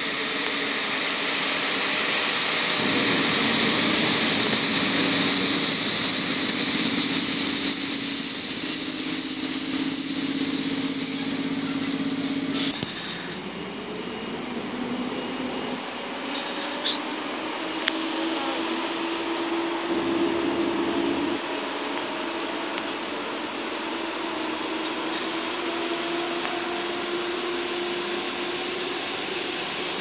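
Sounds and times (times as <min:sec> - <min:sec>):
train wheels rumbling: 0:00.2 - 0:16.9
high-pitched wheel squeal: 0:02.4 - 0:13.3.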